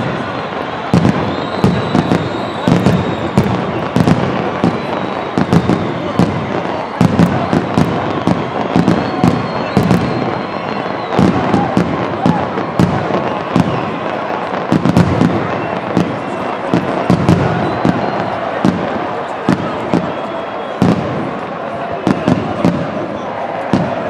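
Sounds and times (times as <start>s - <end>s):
crowd noise: 0.0s - 24.0s
fireworks bangs and pops: 0.0s - 24.0s.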